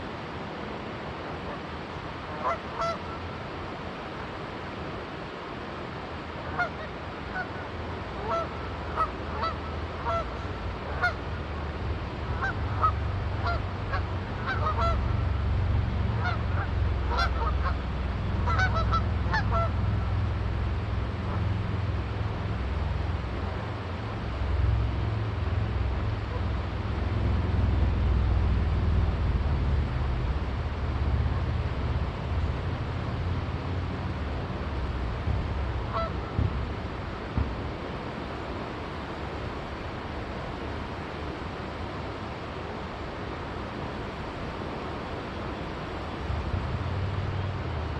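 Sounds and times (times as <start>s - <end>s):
geese honking: 2.4s - 3.2s, 6.5s - 7.6s, 8.2s - 11.2s, 12.3s - 15.4s, 16.1s - 20.0s, 35.8s - 36.3s
steady low rumble: 10.0s - 40.8s.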